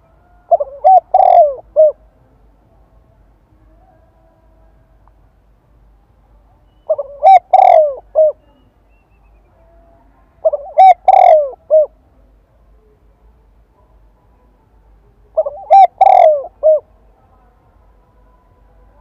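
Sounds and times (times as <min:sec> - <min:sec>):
dove cooing: 0:00.0 - 0:02.0, 0:06.9 - 0:08.5, 0:10.4 - 0:12.0, 0:15.3 - 0:16.9.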